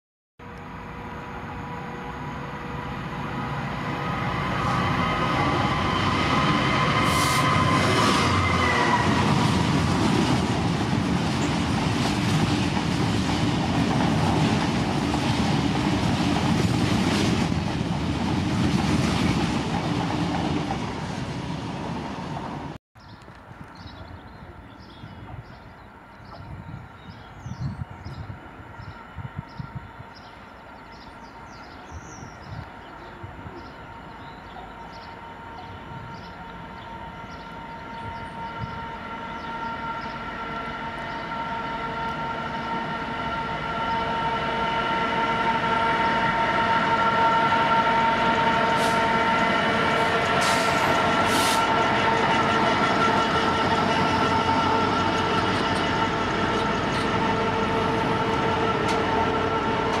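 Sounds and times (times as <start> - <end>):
diesel locomotive engine: 0.4 - 60.0.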